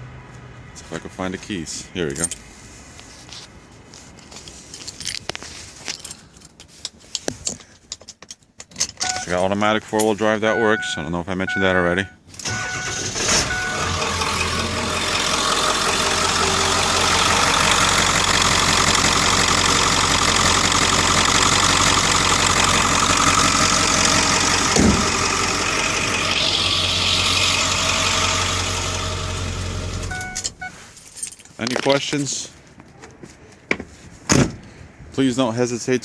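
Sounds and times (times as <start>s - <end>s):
diesel engine starting and idling: 12.3s - 30.7s
brief thump: 24.8s - 25.1s.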